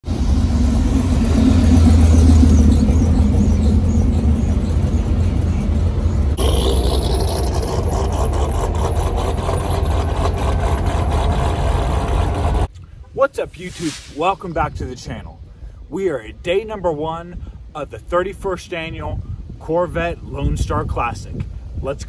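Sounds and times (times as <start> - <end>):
car engine running loud: 0.0 - 12.7
several car engines idling: 0.0 - 12.7.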